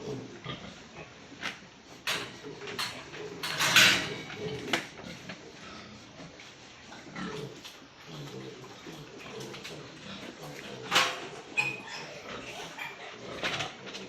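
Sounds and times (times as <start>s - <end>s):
knocks and clatters: 2.0s - 5.0s.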